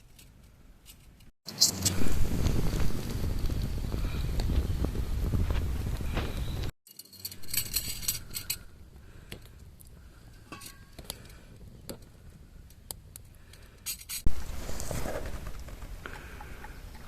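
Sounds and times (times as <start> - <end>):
utensils clattering: 6.9 - 8.7
utensils clinking: 6.9 - 8.7.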